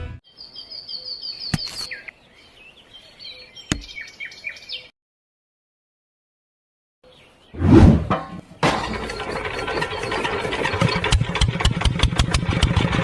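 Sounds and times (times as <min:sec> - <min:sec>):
small bird chirping: 0:00.3 - 0:04.9.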